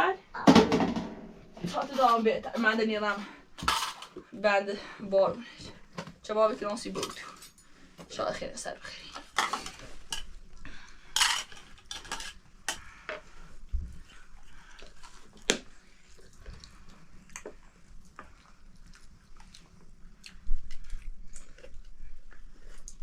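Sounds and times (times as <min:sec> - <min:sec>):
pots and dishes clinking: 0:11.2 - 0:12.8.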